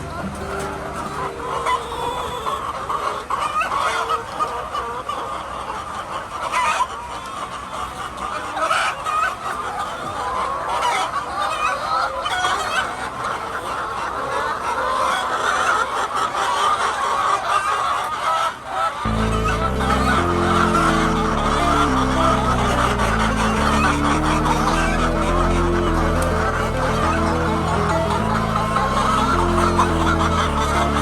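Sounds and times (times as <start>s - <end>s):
hens clucking: 0.0s - 8.9s, 19.1s - 31.0s.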